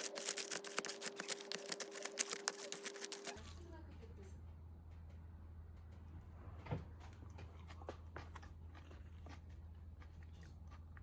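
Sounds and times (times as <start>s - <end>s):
utensils clicking: 0.0s - 3.4s
steady low hum: 0.0s - 11.0s
chewing: 7.0s - 11.0s.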